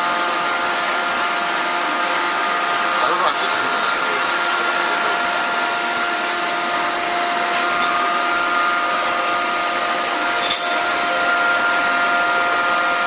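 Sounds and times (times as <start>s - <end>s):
industrial machinery hum and whine: 0.0s - 13.0s.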